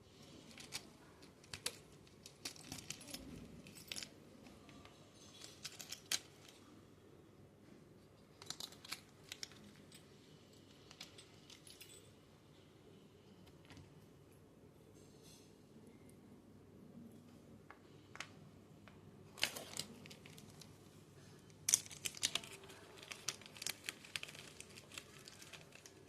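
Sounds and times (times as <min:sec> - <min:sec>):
clicks of small parts and tools: 0:04.8 - 0:06.6.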